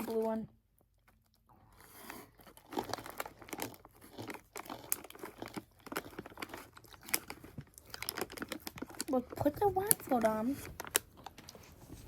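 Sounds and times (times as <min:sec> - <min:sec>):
snack packaging crinkling: 0:00.0 - 0:12.0
packaging tearing: 0:01.9 - 0:11.5.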